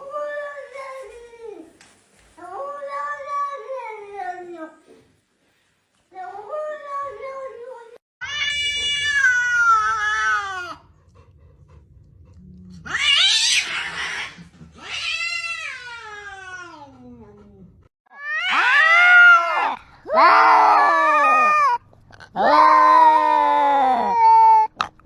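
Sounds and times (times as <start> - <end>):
cats meowing and yowling: 8.2 - 10.9, 12.8 - 17.1, 18.1 - 21.8, 22.4 - 24.7.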